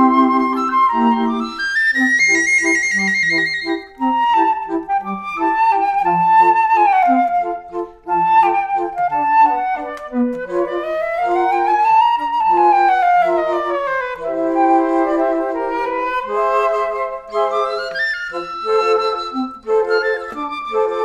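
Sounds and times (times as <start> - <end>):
flute-like melody with bass: 0.0 - 21.0.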